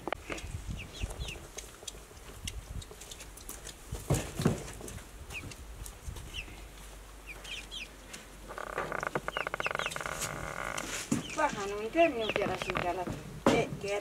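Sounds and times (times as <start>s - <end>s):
chicken high chirps: 7.2s - 8.0s.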